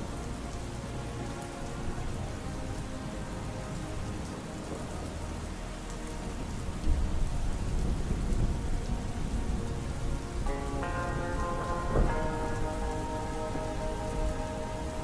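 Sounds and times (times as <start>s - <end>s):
steady rain falling: 0.0s - 15.0s
low roll of thunder: 6.9s - 15.0s.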